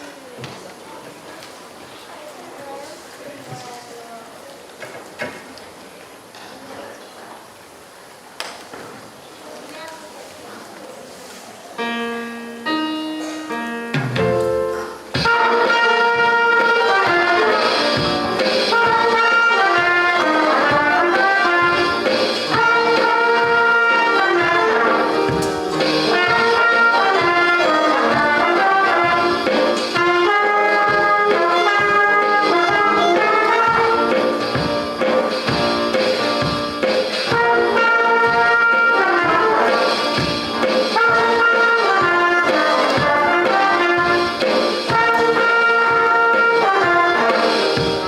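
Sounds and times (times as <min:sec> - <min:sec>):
jazz band playing: 0:11.8 - 0:48.0.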